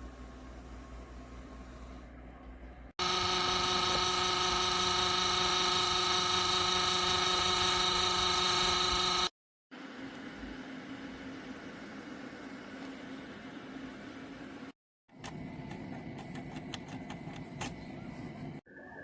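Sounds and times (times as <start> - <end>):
heater fan motor whirring: 0.0 - 9.3.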